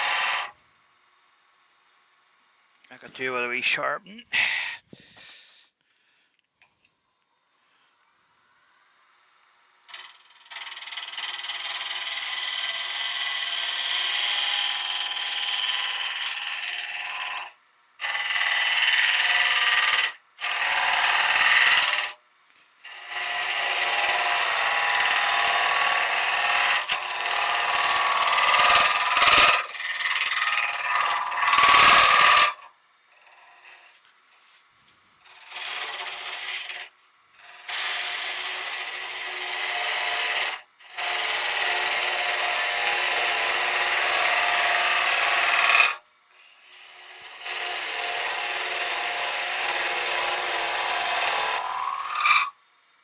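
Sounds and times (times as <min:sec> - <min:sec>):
bench grinder grinding steel: 0:00.0 - 0:00.6, 0:09.8 - 0:22.2, 0:22.8 - 0:34.6, 0:35.2 - 0:52.6.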